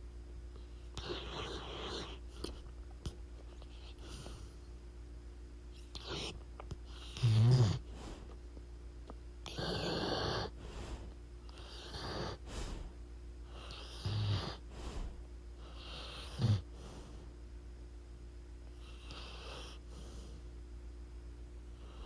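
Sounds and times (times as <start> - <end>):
dog snoring: 0.9 - 2.6, 3.6 - 4.6, 5.8 - 8.4, 9.4 - 17.3, 18.8 - 20.5, 21.8 - 22.0.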